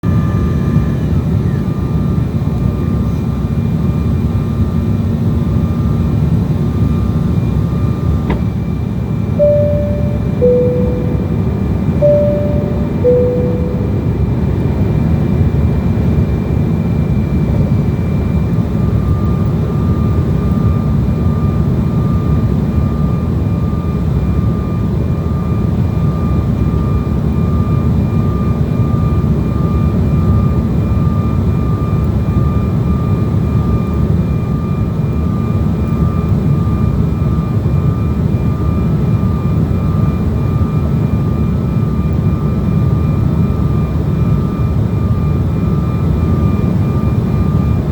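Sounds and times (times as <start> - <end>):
faint high whine: 9.4 - 14.5.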